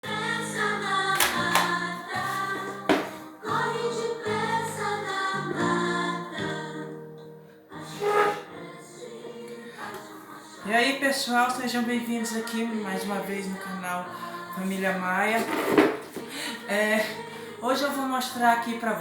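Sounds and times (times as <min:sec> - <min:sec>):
intro music with voices singing: 0:00.0 - 0:18.2.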